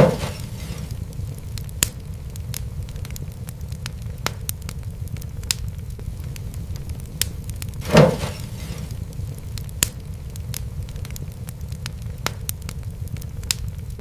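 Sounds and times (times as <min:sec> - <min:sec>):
wood fire crackling: 0:00.0 - 0:14.0
short hiss: 0:07.8 - 0:09.0.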